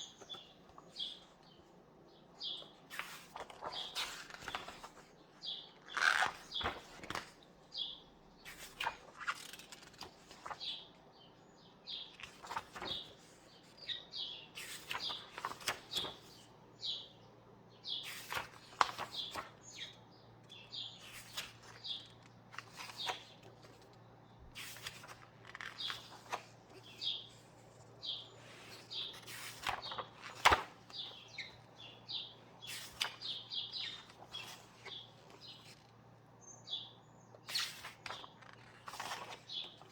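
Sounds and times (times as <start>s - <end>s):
book pages turning: 2.6s - 5.1s, 5.8s - 7.4s, 8.5s - 10.8s, 12.1s - 13.7s, 14.6s - 16.4s, 18.0s - 19.6s, 21.0s - 36.1s, 37.4s - 39.9s
small birds chirping: 7.7s - 8.6s, 10.0s - 39.9s.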